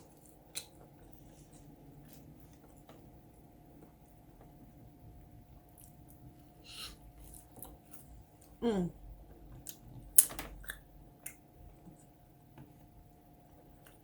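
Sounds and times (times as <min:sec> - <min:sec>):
soft chewing: 0:00.0 - 0:04.6, 0:05.6 - 0:08.6, 0:13.5 - 0:14.0
person humming mmm: 0:08.6 - 0:09.0.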